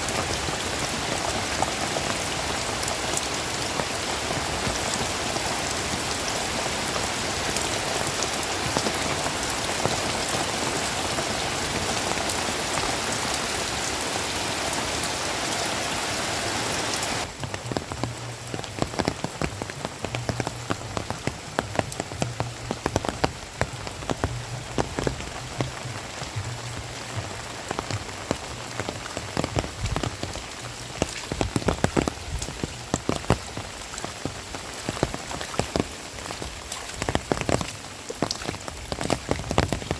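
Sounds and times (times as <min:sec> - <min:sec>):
heavy rain hissing: 0:00.0 - 0:39.9
raindrops striking close by: 0:00.0 - 0:39.9.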